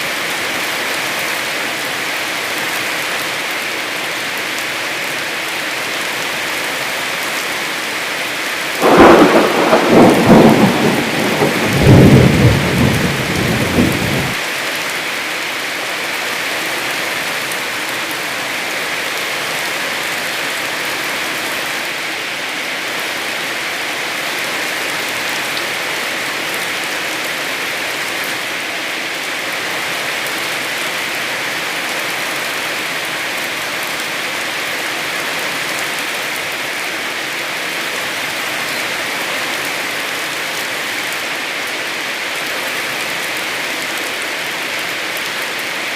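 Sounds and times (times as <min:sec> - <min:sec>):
heavy rain: 0:00.0 - 0:45.9
thunder rumble: 0:08.8 - 0:14.4.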